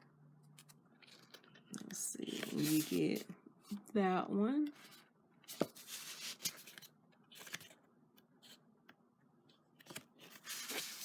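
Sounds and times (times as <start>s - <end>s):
paper sheets rustling: 2.2s - 3.2s, 9.8s - 11.0s.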